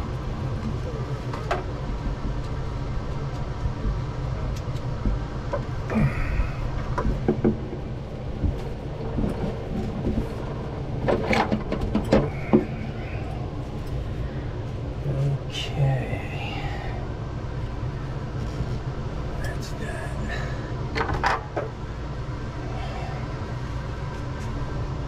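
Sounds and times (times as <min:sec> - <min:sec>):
steady low rumble: 0:00.0 - 0:25.0
handling knocks and clicks: 0:06.9 - 0:12.8.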